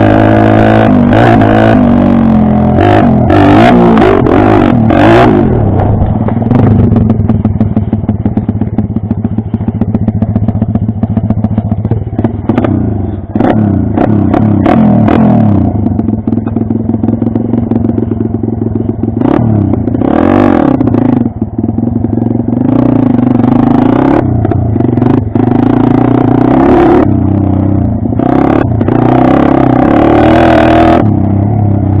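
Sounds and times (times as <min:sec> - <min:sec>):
pit bike engine revving: 0:00.0 - 0:32.0.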